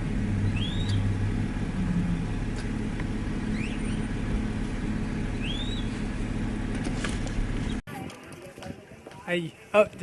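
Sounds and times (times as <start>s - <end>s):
car rumbling: 0.0s - 7.8s.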